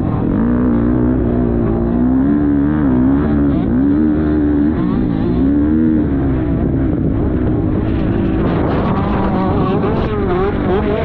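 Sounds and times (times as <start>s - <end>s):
motocross bike engine revving: 0.0s - 11.0s.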